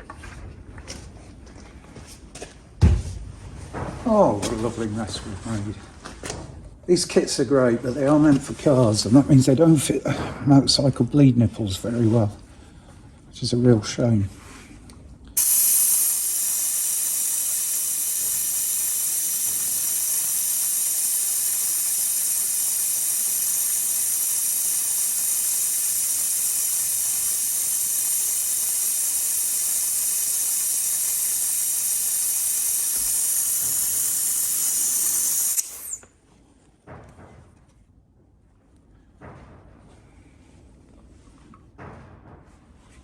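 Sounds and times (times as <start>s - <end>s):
compressed-air hiss: 15.4s - 36.1s.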